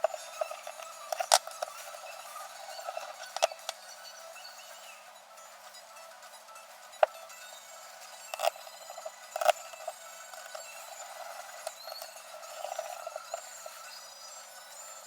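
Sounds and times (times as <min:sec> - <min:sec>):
small ticks: 0:08.2 - 0:14.1.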